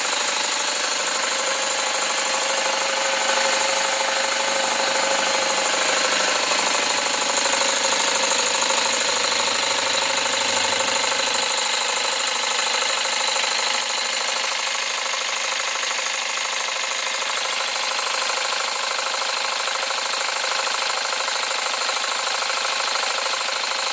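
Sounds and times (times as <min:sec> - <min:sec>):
fast exhaust beat: 0:00.0 - 0:15.0
model steam engine running: 0:00.0 - 0:23.9.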